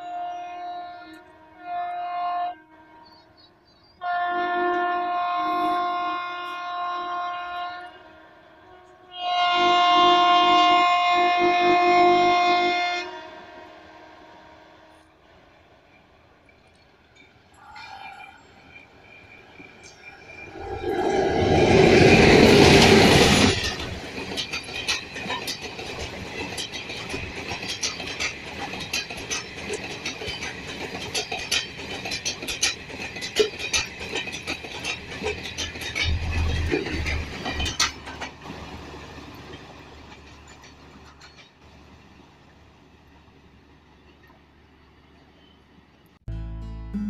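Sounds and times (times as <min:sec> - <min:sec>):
locomotive rushing past: 0:17.0 - 0:44.6
wheels clacking over rail joints: 0:21.7 - 0:43.2.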